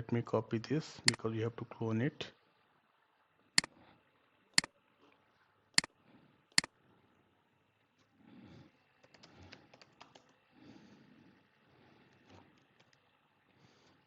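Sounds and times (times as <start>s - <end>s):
computer mouse clicking: 9.0s - 10.4s.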